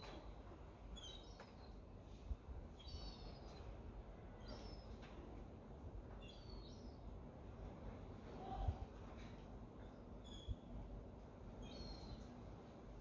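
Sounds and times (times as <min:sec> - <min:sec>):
low background noise: 0:00.0 - 0:13.0
faint bird chirps: 0:02.8 - 0:03.7, 0:10.2 - 0:10.8, 0:11.6 - 0:12.4.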